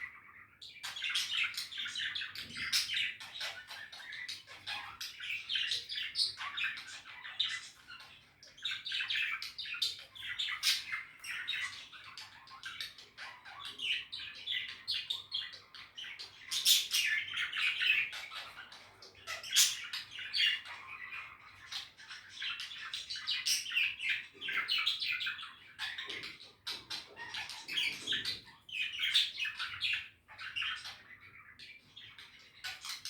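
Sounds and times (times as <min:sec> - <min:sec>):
budgerigars chattering: 0:00.0 - 0:33.0.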